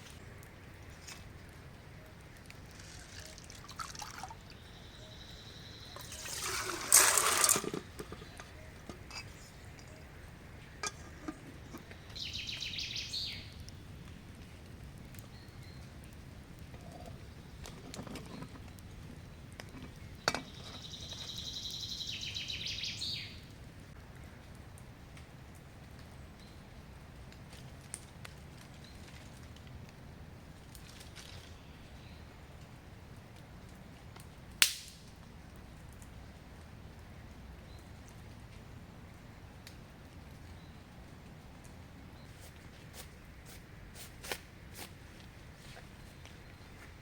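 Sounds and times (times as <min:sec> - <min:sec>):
water being poured: 0:02.7 - 0:04.6, 0:06.0 - 0:09.9.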